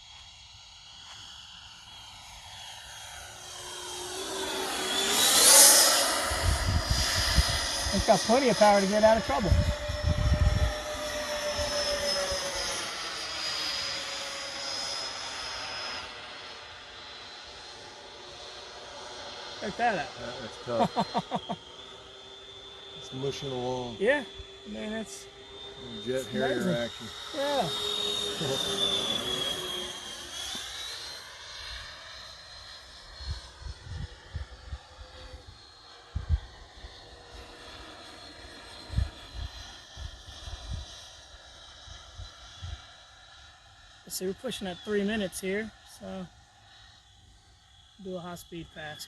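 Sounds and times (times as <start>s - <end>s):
model jet fan whining: 0.3s - 49.0s
wind rumble on microphone: 6.2s - 11.9s, 33.2s - 35.4s, 36.1s - 36.6s, 38.8s - 41.0s, 42.1s - 42.9s.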